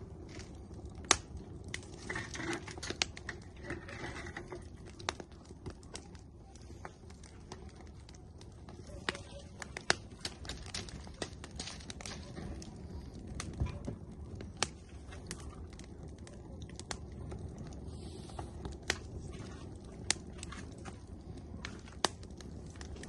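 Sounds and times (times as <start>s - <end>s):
firewood crackling and popping: 0.0s - 23.0s
low fire rumble: 0.0s - 23.0s.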